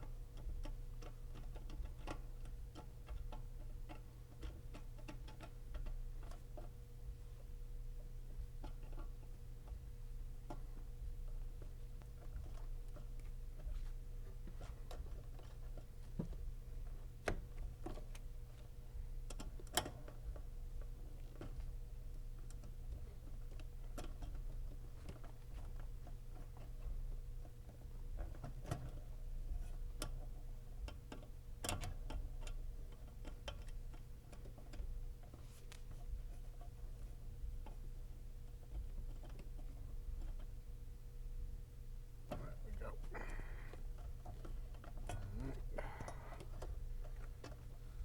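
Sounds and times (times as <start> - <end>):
small clicks and taps: 0.0 - 6.8, 10.4 - 18.7, 22.4 - 37.8.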